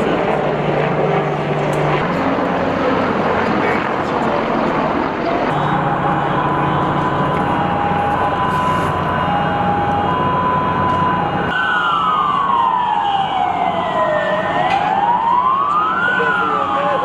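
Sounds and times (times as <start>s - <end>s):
slow wailing siren: 0.0s - 17.0s
two-tone siren: 5.0s - 17.0s.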